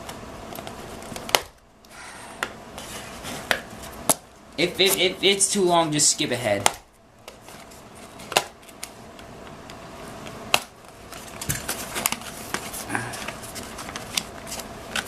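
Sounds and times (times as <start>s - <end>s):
cardboard rustling and scraping: 2.7s - 5.2s, 7.3s - 8.4s, 11.0s - 15.0s.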